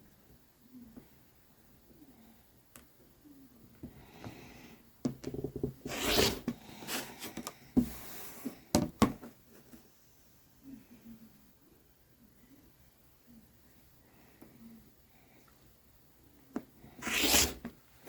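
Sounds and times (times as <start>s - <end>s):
rotary cutter scraping through fabric: 5.9s - 6.4s, 17.0s - 17.6s.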